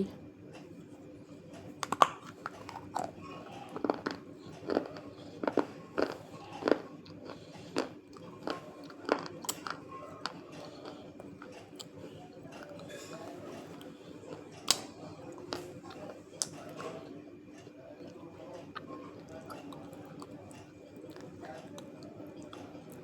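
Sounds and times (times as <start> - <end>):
person chewing crunchy clay: 1.8 - 12.0.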